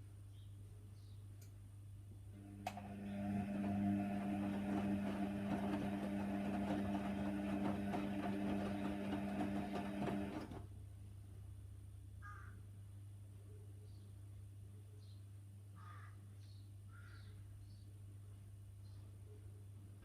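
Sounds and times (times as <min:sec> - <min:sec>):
washer dryer motor hum: 0:02.3 - 0:10.6.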